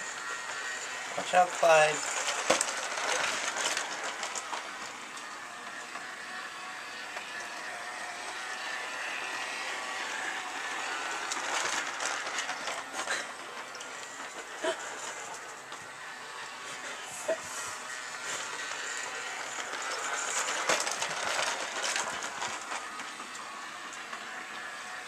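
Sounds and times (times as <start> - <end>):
toy train whirring and rattling: 0.0 - 25.0.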